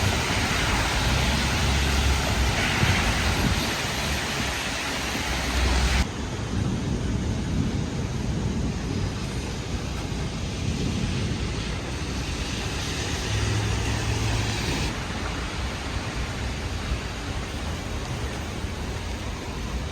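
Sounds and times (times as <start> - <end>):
gusty wind: 0.0 - 19.9
heavy rain: 0.0 - 19.9.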